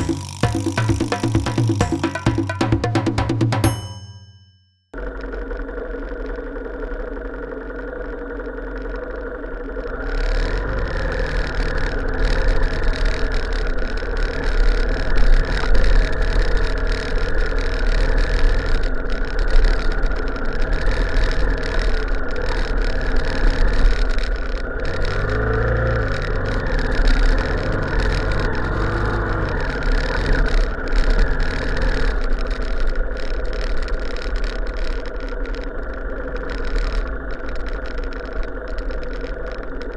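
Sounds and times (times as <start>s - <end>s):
vehicle engine running: 0.0s - 3.8s, 5.0s - 39.9s.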